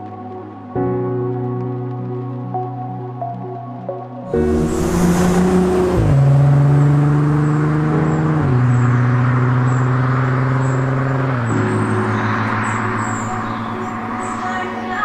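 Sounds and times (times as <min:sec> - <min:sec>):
car engine shifting gears: 0:04.4 - 0:14.4.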